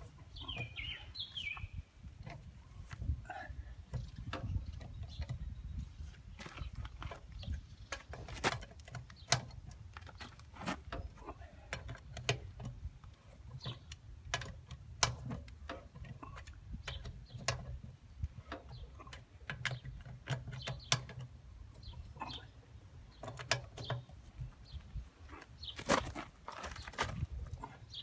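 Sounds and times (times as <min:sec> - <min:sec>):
metallic clicks and clanks of tools: 0:06.6 - 0:22.4, 0:23.1 - 0:24.5.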